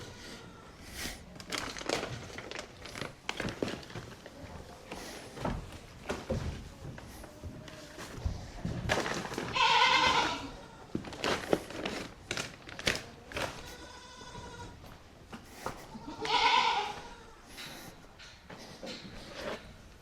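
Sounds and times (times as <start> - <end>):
goat bleating: 9.5 - 11.0, 13.5 - 14.8, 15.8 - 17.5.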